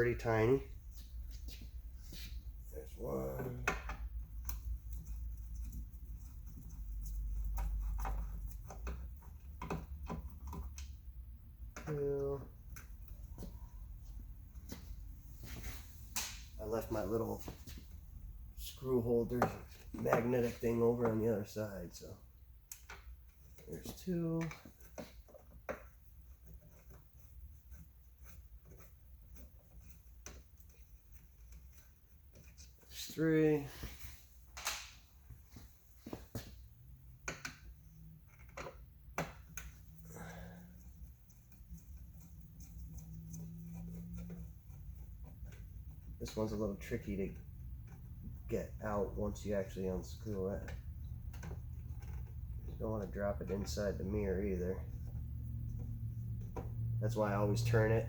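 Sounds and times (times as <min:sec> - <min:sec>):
low steady rumble: 0:36.6 - 0:58.0.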